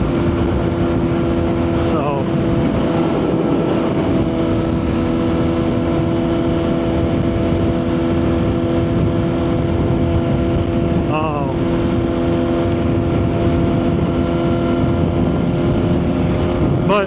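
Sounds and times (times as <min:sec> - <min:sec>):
motorcycle engine cruising: 0:00.0 - 0:17.0
wind rumbling on microphone: 0:00.0 - 0:17.0.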